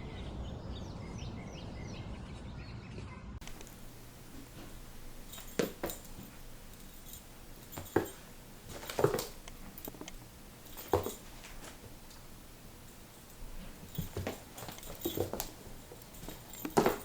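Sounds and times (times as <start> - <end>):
objects knocking and tapping: 3.4 - 17.0.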